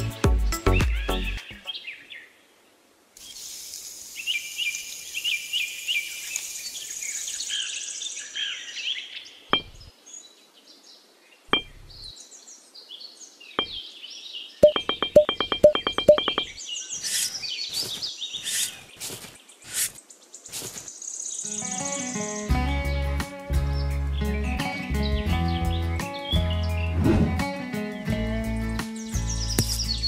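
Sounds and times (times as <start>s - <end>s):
birds chirping: 0.6s - 2.3s, 4.1s - 22.5s, 28.0s - 30.0s
steady hiss: 3.0s - 8.2s, 17.0s - 21.4s.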